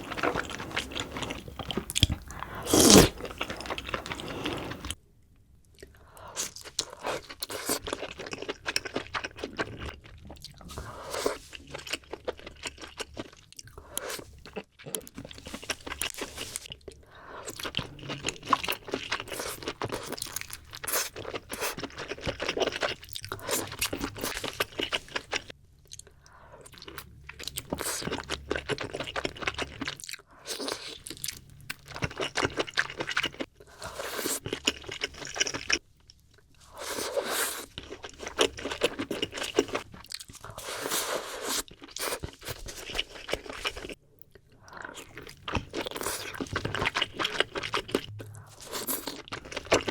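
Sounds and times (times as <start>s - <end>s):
crackling mouth sounds: 0.0s - 4.9s
crunchy chewing and biting: 0.0s - 5.0s, 36.6s - 49.9s.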